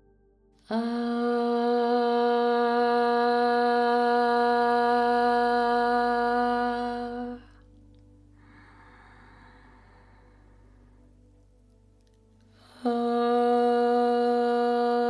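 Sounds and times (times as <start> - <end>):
person chanting ah tone: 0.7 - 7.6, 12.6 - 15.0.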